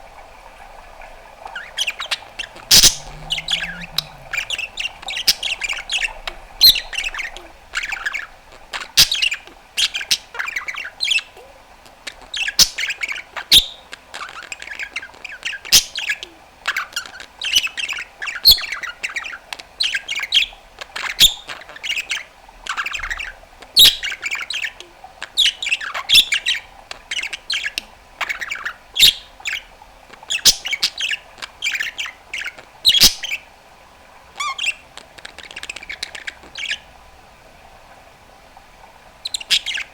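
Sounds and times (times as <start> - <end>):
budgerigar chattering: 2.4 - 8.3.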